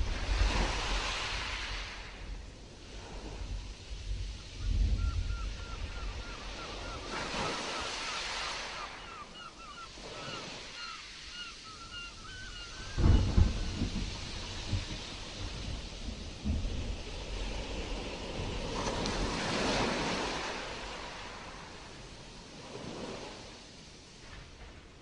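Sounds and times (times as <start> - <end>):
wind buffeting microphone: 0.0 - 8.5, 11.9 - 25.0
sea surf washing and hissing: 0.0 - 25.0.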